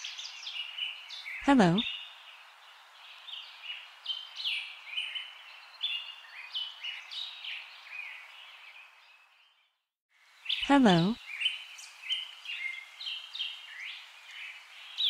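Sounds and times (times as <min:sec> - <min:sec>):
small birds chirping: 0:00.0 - 0:15.0
soft steady hiss: 0:10.2 - 0:15.0.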